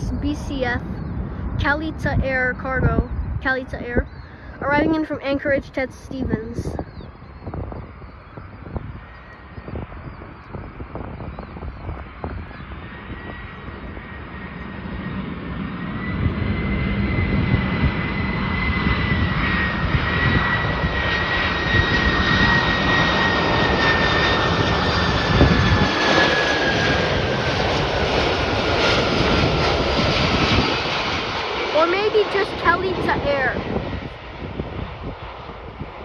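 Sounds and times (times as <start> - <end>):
high fan whine: 0.0 - 36.0
jet engines roaring: 0.0 - 36.0.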